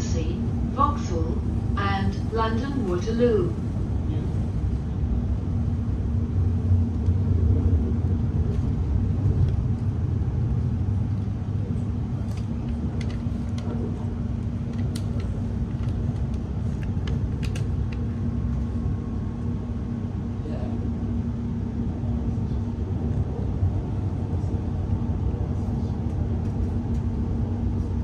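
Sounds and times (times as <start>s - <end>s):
train rumble and hum: 0.0s - 28.0s.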